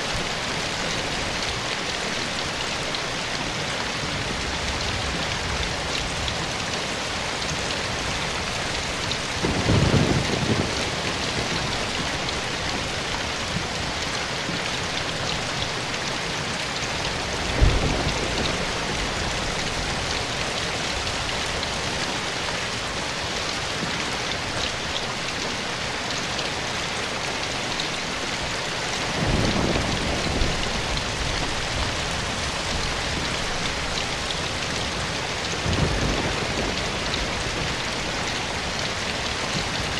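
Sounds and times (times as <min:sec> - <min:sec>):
rain on leaves and ground: 0:00.0 - 0:39.9
distant thunder rumbles: 0:09.3 - 0:12.8, 0:29.1 - 0:38.8.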